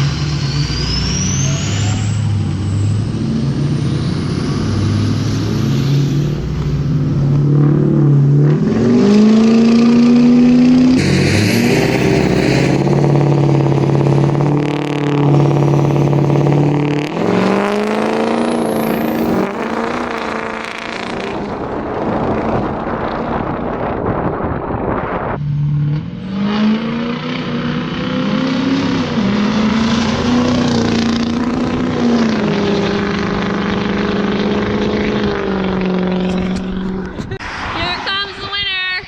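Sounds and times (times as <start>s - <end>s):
diesel trucks accelerating hard: 0.0s - 39.0s
high whistle: 0.3s - 3.0s, 15.2s - 19.9s.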